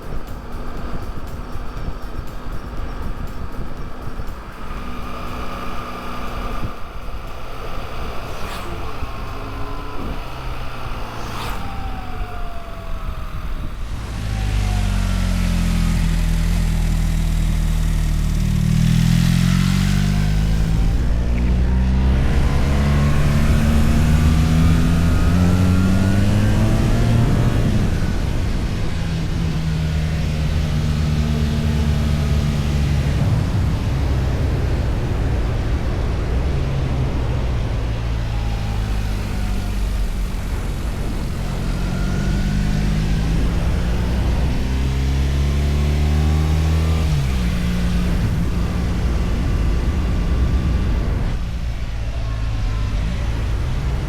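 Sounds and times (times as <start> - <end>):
steady rushing hiss: 0.0 - 19.2
motorcycle engine accelerating: 0.0 - 54.0.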